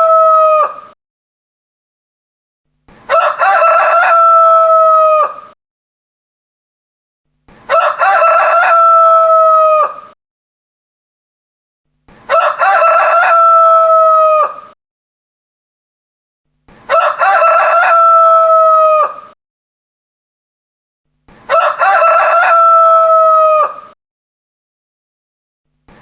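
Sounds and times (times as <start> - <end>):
rooster crowing: 0.0 - 1.0, 3.1 - 5.6, 7.7 - 10.2, 12.3 - 14.8, 16.9 - 19.4, 21.5 - 24.0.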